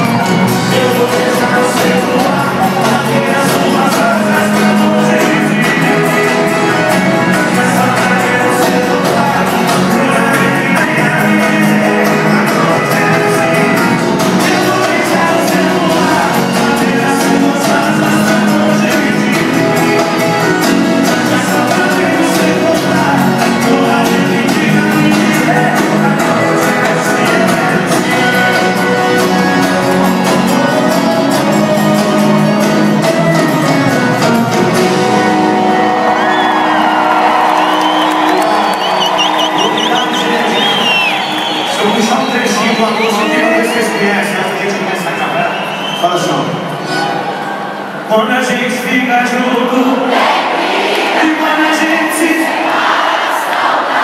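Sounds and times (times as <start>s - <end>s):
person singing: 0.0s - 41.1s
live band playing amplified music: 0.0s - 54.0s.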